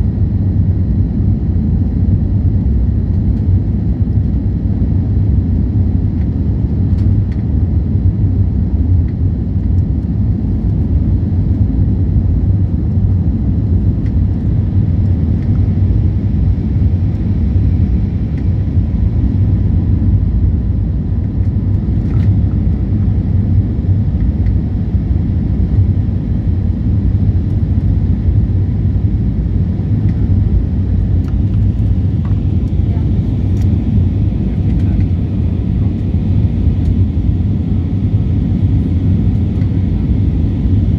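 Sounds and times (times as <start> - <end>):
jet engine low rumble: 0.0 - 40.9.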